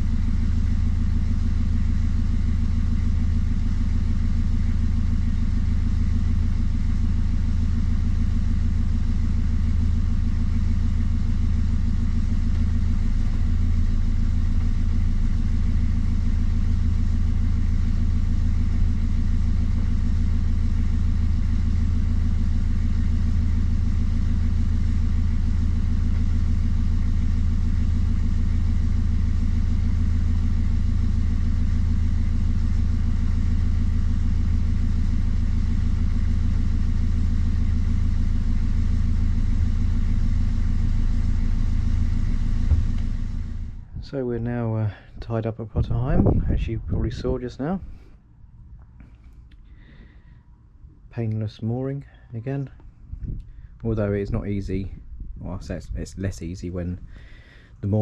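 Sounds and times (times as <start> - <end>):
boat diesel engine droning: 0.0 - 58.0.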